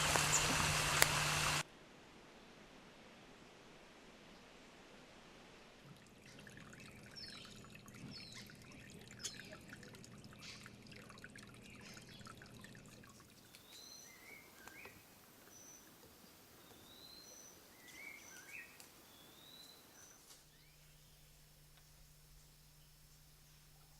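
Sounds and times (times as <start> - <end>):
birds chirping and clicking: 11.5 - 19.0.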